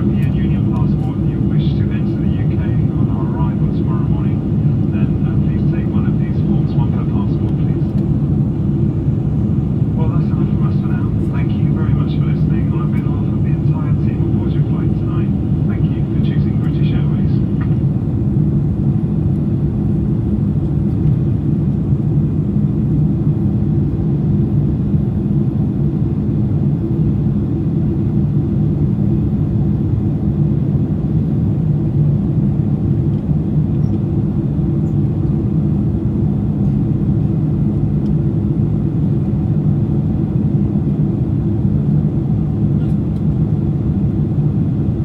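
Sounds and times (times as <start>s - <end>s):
low hums: 0.0s - 25.5s
aircraft cabin engine rumble: 0.0s - 45.0s.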